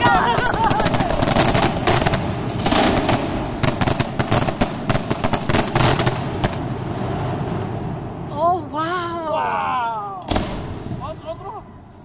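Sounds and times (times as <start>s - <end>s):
fireworks crackling pops: 0.0s - 8.0s, 10.1s - 11.5s.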